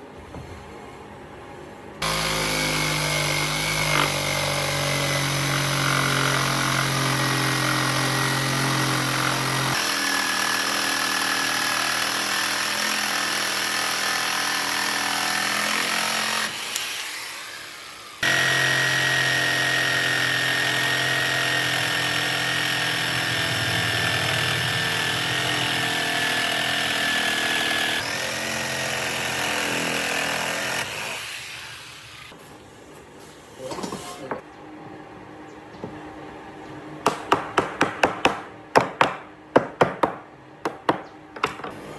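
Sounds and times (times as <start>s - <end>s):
handheld power tool running: 2.0s - 32.2s.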